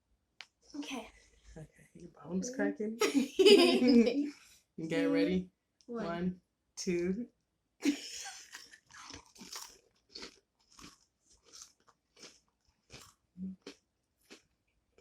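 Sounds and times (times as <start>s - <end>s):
mouth chewing crunchy crisps: 8.3s - 15.0s.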